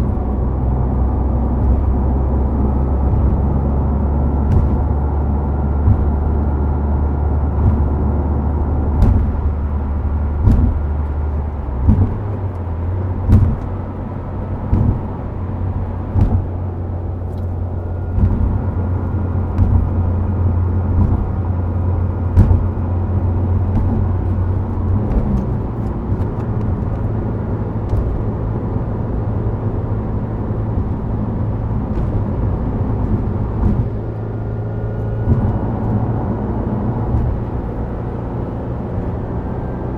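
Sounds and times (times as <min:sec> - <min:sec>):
car engine hum: 0:00.0 - 0:39.9
road noise: 0:00.0 - 0:39.9
tyres knocking over road joints: 0:01.4 - 0:39.4.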